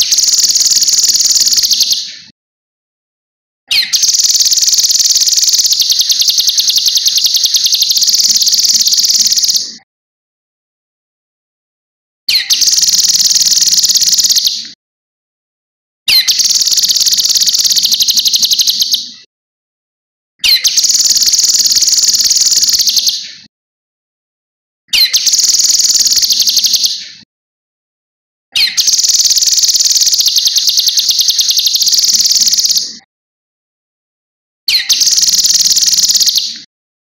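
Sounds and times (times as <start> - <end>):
songbird singing: 0.0 - 2.3, 3.7 - 9.8, 12.3 - 14.8, 16.1 - 19.2, 20.4 - 23.4, 25.0 - 27.2, 28.6 - 32.9, 34.7 - 36.7.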